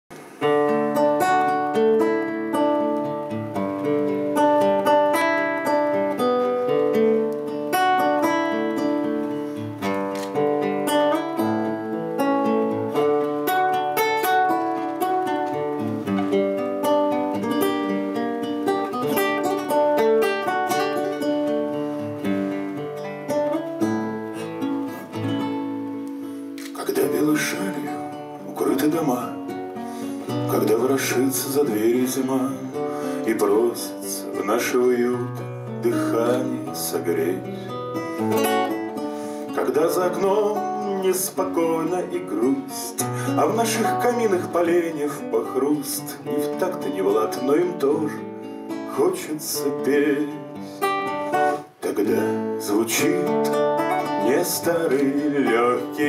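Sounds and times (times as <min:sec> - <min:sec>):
acoustic guitar playing: 0:00.1 - 0:56.0.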